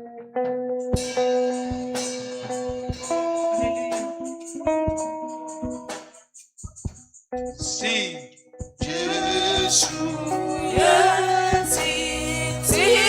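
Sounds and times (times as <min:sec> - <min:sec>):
guitar: 0:00.0 - 0:13.0
drum hits: 0:08.6 - 0:12.0
band playing a hymn: 0:08.9 - 0:13.0.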